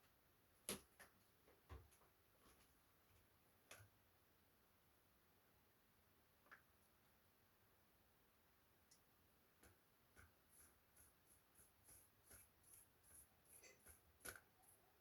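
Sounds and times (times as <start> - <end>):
light scratching: 10.2 - 15.0.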